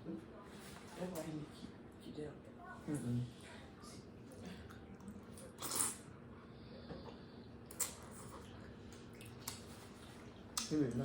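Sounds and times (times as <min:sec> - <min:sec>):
eating sounds: 0:06.9 - 0:11.0.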